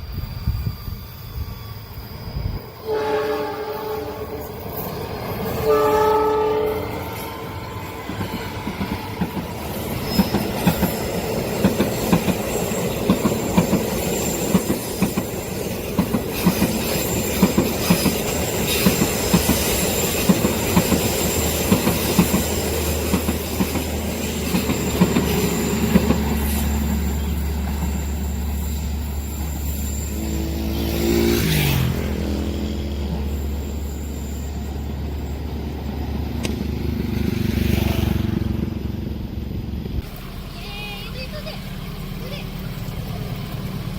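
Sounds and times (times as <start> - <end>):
high steady squeal: 0.0 - 36.6
train horn: 2.8 - 4.6, 5.6 - 7.8
train wheels clickety-clack: 6.9 - 33.7.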